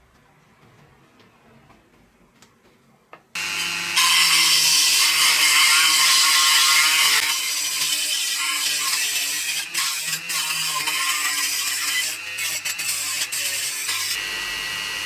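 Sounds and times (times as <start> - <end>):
small power tool whining: 3.4 - 15.0.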